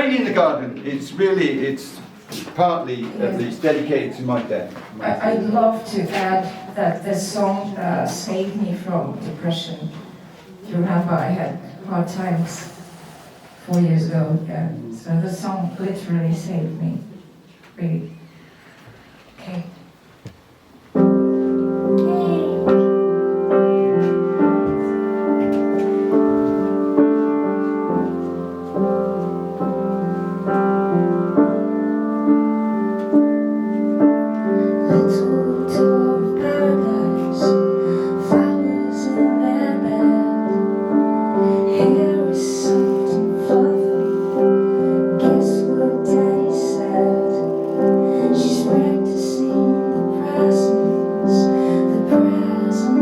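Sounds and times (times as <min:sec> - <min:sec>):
slow piano music: 0:20.7 - 0:53.0.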